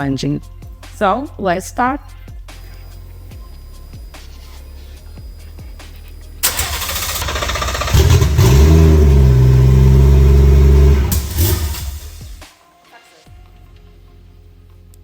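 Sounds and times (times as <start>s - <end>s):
car engine idling: 2.7s - 12.4s
starter cranking engine: 5.2s - 12.4s.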